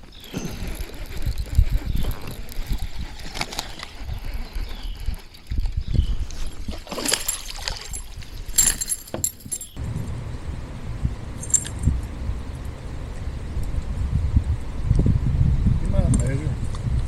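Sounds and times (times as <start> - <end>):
fishing tackle rattling: 6.8 - 9.8, 11.4 - 12.0
low rumble: 9.8 - 17.0.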